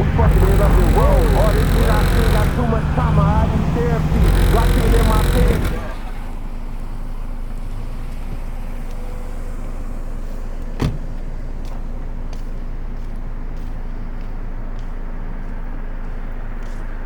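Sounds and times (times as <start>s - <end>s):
car engine humming: 0.0s - 17.0s
sharp click: 4.2s - 6.2s.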